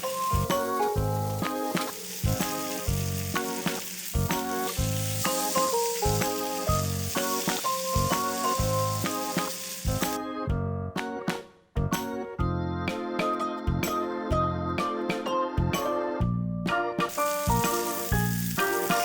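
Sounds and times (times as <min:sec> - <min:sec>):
meat sizzling on grill: 0:00.0 - 0:10.2, 0:17.1 - 0:19.0
rhythmic background music: 0:00.0 - 0:19.0.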